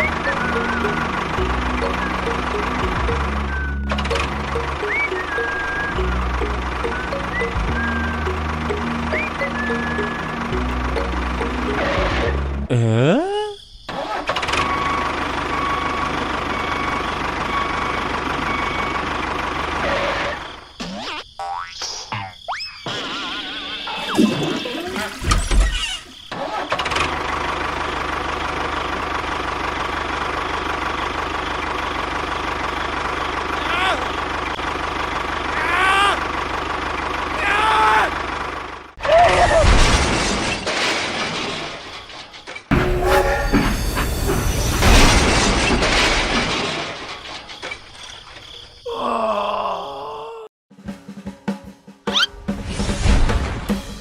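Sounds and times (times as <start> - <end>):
small engine running: 0.0 - 12.5, 26.7 - 39.0
train running: 0.0 - 12.6, 41.4 - 48.1.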